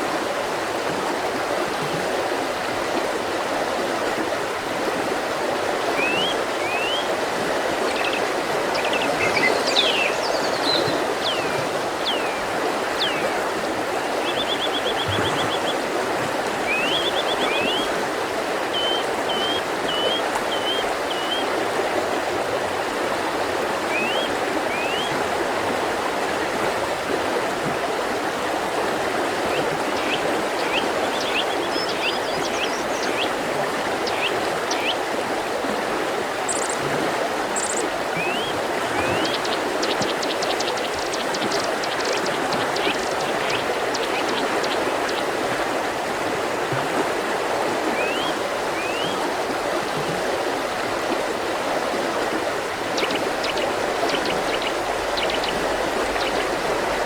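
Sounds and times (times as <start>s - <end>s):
songbirds chirping: 5.9s - 15.9s, 16.6s - 17.9s, 18.7s - 21.5s, 29.5s - 35.1s, 37.6s - 45.5s, 48.0s - 49.2s, 52.5s - 57.0s.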